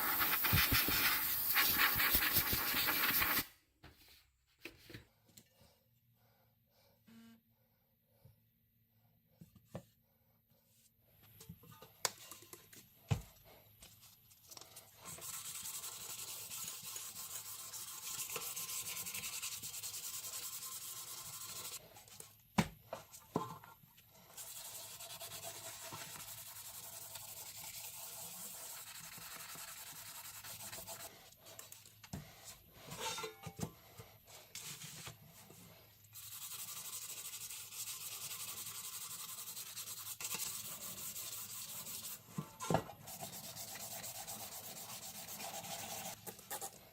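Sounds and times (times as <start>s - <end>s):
sanding metal: 15.1s - 21.8s, 24.4s - 31.1s, 36.2s - 42.3s, 43.0s - 46.2s.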